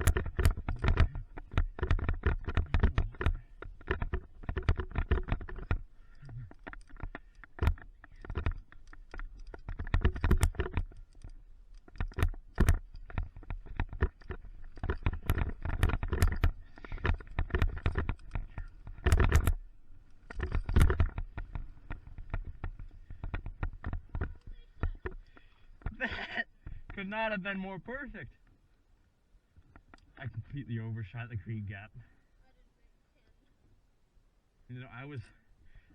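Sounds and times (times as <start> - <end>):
knocks from bumps: 0.0 - 11.0, 11.9 - 19.6
mountain bike rattling: 0.0 - 27.5.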